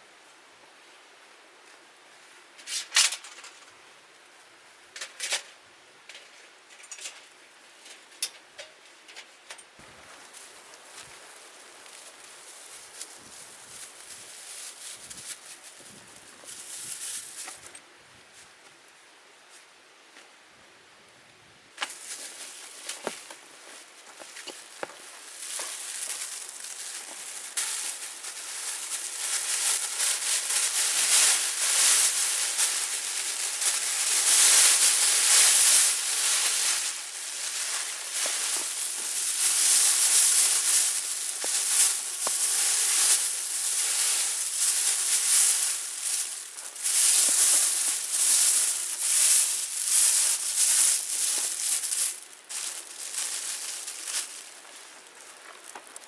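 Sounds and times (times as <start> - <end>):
wood fire crackling: 21.8 - 56.0
fire popping: 24.4 - 56.0.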